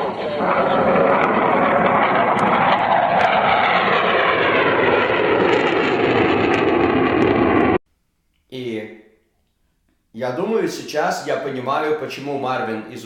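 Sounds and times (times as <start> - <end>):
aircraft engine noise: 0.0 - 7.8.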